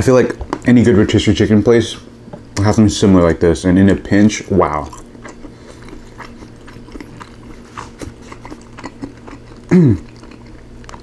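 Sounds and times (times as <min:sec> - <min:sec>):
wet chewing: 0:00.3 - 0:00.8, 0:04.7 - 0:11.0
person humming mm: 0:09.7 - 0:10.2.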